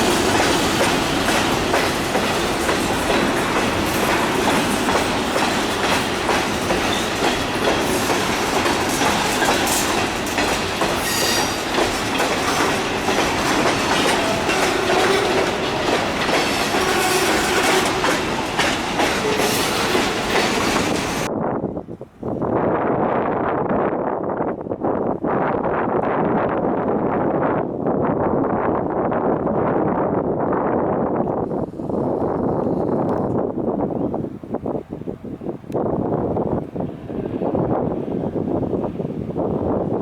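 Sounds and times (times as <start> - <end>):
train wheels clacking on rails: 0.0 - 21.3
wheel squeal: 11.0 - 11.8.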